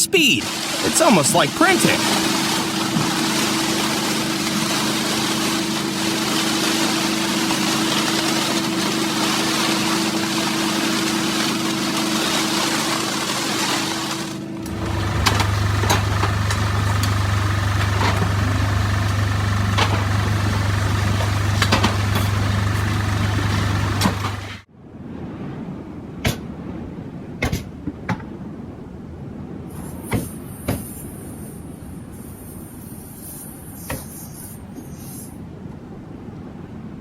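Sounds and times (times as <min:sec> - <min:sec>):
machine humming: 0:00.0 - 0:24.6.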